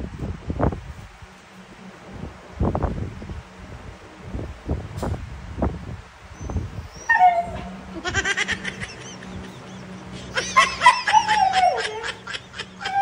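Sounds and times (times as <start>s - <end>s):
dog whining: 6.3s - 8.4s, 10.4s - 13.0s
dog yelping: 6.4s - 7.9s, 10.4s - 13.0s.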